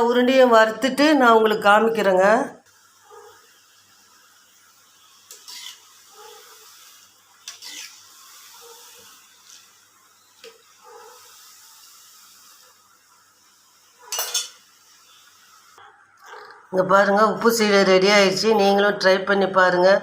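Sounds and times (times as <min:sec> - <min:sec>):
faint hiss: 0:00.0 - 0:18.8
utensils clinking and scraping: 0:14.1 - 0:14.6.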